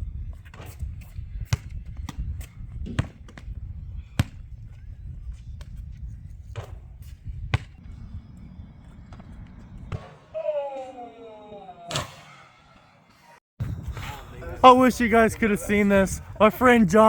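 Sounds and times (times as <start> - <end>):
basketball bouncing thuds: 0.4 - 4.8, 5.4 - 10.3
steady low rumble: 3.4 - 10.0.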